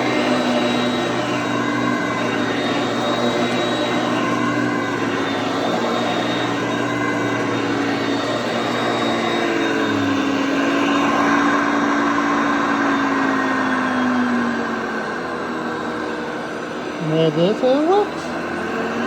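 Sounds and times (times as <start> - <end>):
upright vacuum cleaner running: 0.0 - 19.0.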